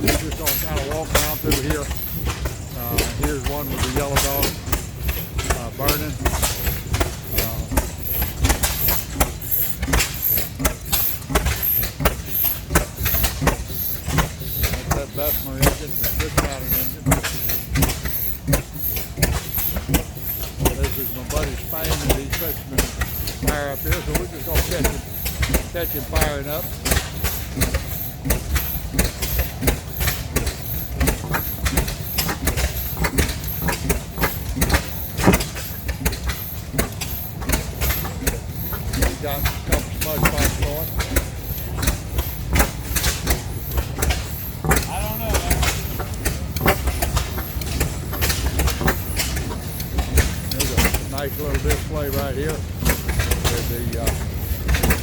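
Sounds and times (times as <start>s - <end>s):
low engine rumble: 0.0s - 11.4s, 36.8s - 55.0s
engine exhaust pops: 0.0s - 55.0s.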